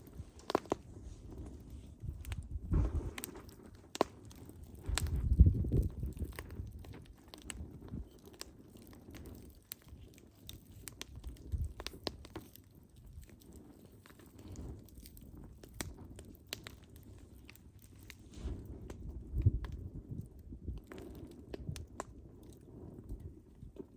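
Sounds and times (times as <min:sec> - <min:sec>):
burning logs popping: 0:00.0 - 0:23.9
low fire rumble: 0:00.0 - 0:23.9
wood fire crackling: 0:00.0 - 0:23.9.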